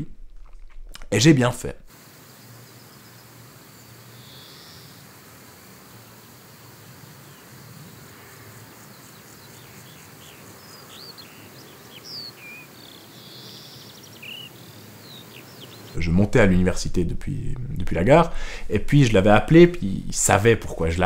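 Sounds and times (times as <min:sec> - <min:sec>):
small birds chirping: 0:02.0 - 0:16.2
faint low rumble: 0:16.0 - 0:21.0.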